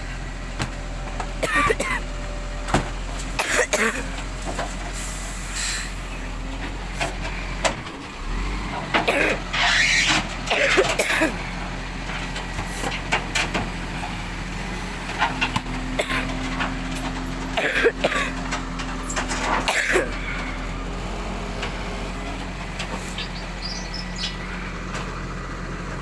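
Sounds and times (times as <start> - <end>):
truck engine running: 0.0 - 26.0
knocks and clatter: 15.1 - 20.3.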